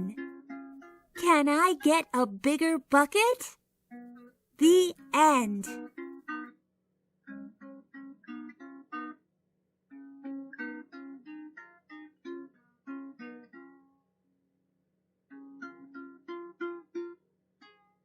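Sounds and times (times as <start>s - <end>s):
plucked acoustic guitar melody: 0.0s - 6.5s.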